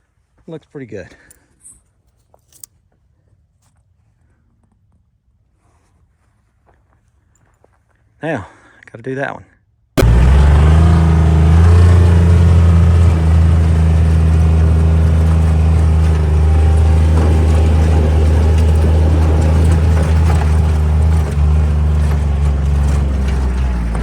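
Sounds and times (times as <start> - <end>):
engine humming steadily: 10.0 - 24.0.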